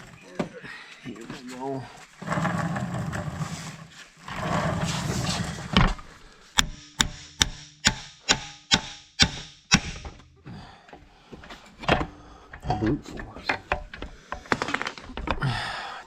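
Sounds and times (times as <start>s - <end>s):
rough scraping: 2.0s - 7.8s
hammer blows ringing on metal: 6.6s - 10.4s.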